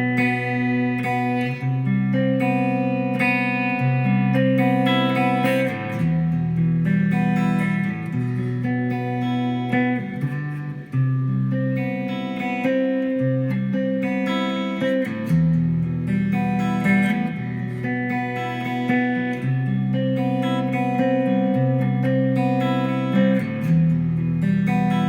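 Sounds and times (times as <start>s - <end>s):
guitar playing chords: 0.0s - 25.0s.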